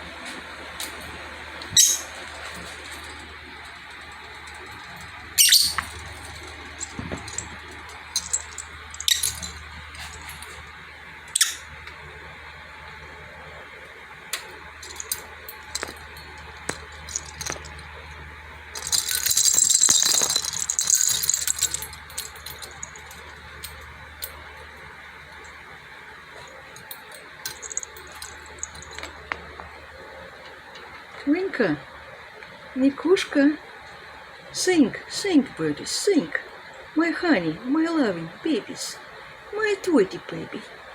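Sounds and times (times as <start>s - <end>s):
low steady hum: 0.0s - 40.9s
birds clicking and rattling in cage: 1.7s - 10.6s, 14.8s - 17.8s, 18.8s - 24.4s, 26.8s - 29.4s
dense high-pitched rattle: 1.8s - 10.6s, 14.8s - 18.1s, 18.7s - 24.4s, 26.4s - 29.4s.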